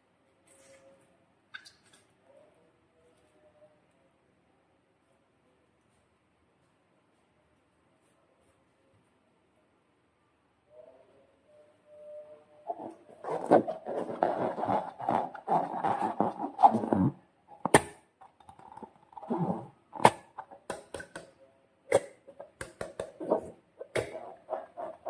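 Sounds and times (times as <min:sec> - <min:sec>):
slime squishing: 0:12.7 - 0:21.3, 0:22.0 - 0:25.0.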